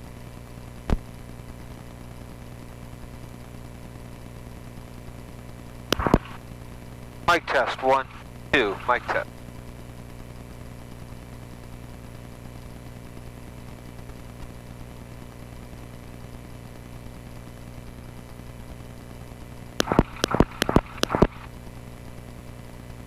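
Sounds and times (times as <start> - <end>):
sharp clicks: 5.9 - 6.4, 19.8 - 21.5.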